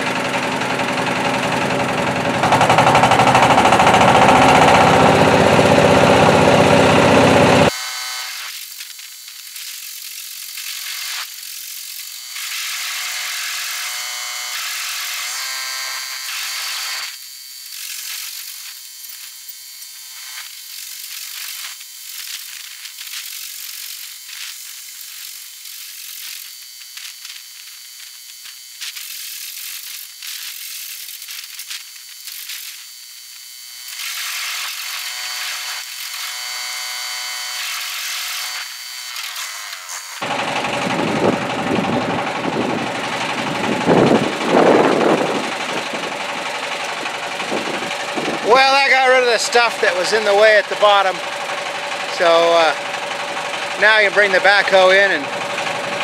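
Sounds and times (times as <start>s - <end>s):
rock crusher rattling: 0.1s - 7.7s, 40.2s - 56.0s.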